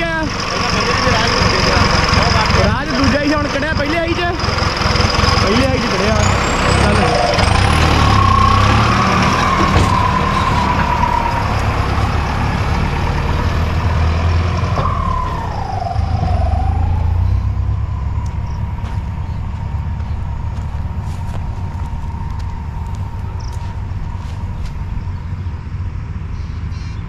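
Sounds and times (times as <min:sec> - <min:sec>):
tractor engine rumbling: 0:00.0 - 0:27.0
whine dipping in pitch: 0:06.2 - 0:25.1.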